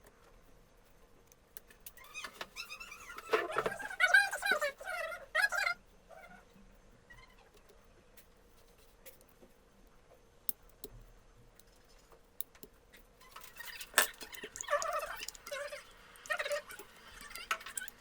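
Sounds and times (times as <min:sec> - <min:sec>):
rustling and scraping: 0:07.3 - 0:09.6
small hard objects clicking: 0:12.4 - 0:18.0.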